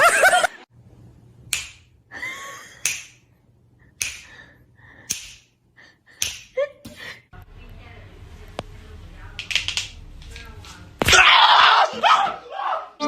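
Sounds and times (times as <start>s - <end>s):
sharp slaps: 1.5s - 1.9s, 2.8s - 3.2s, 4.0s - 5.6s, 6.2s - 6.6s.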